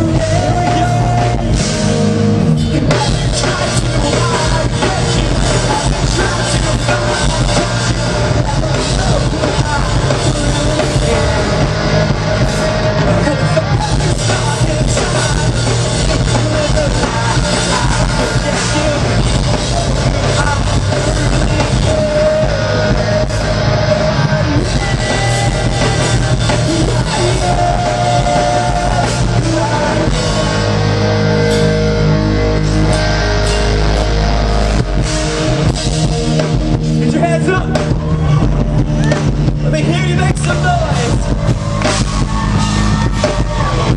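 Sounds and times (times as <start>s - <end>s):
person singing: 0.0s - 31.7s
drum kit: 0.0s - 43.9s
guitars: 0.0s - 43.9s.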